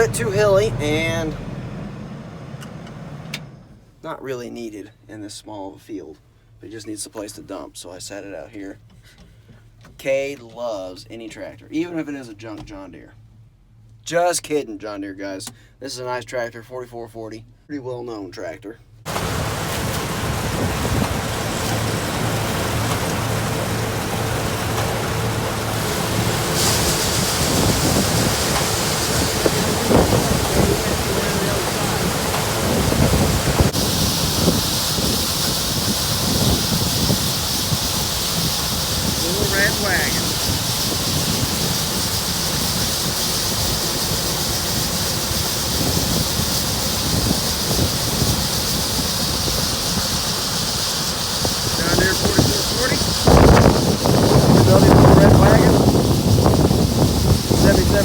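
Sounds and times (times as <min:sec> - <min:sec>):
harvest machinery rushing: 0:00.0 - 0:03.8, 0:19.1 - 0:58.0
diesel engine running: 0:00.0 - 0:04.0, 0:19.1 - 0:58.0
hiss: 0:19.1 - 0:58.0.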